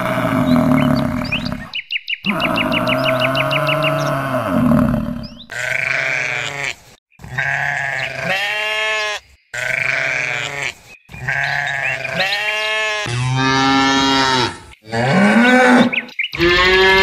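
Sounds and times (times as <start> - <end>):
cow mooing: 0.0 - 6.7, 11.3 - 17.0
goat bleating: 5.5 - 13.2, 16.4 - 17.0.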